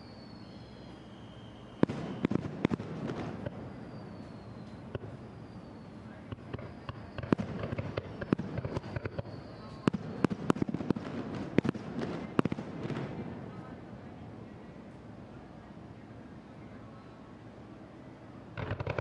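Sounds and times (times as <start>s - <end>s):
rumble of fireworks: 0.0s - 16.8s, 17.4s - 19.0s
fireworks bangs and cracks: 1.8s - 3.6s, 6.3s - 13.2s, 18.6s - 19.0s.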